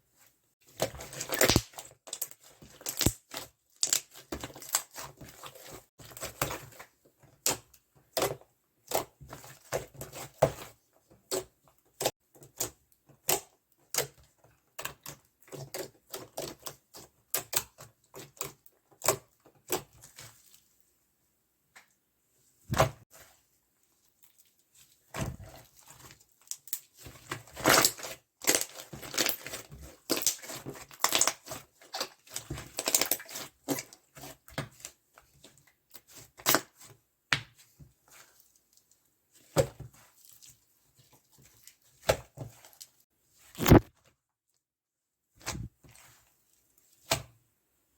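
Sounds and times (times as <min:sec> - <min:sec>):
slime squished with clicking pops: 0:01.4 - 0:01.8.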